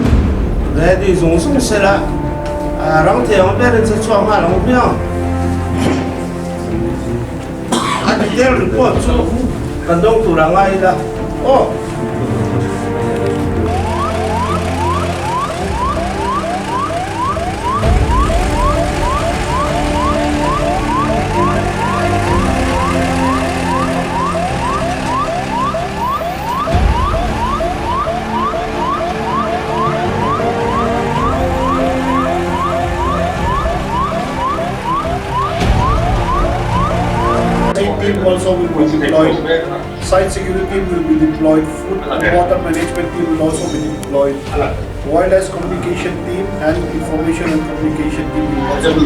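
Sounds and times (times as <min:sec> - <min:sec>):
electronic siren sweeping: 0:11.0 - 0:38.2.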